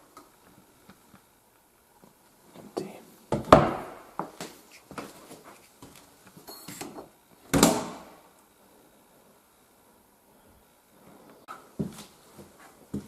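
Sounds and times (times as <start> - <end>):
cabinet knocks and clatter: 3.3 - 4.4.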